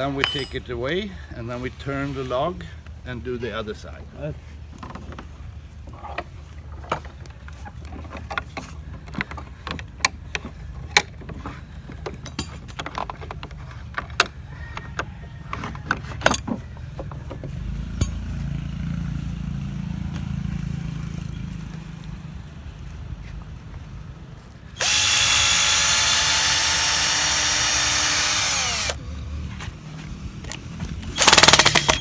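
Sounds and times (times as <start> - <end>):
metal clinks and knocks: 0.0 - 1.1.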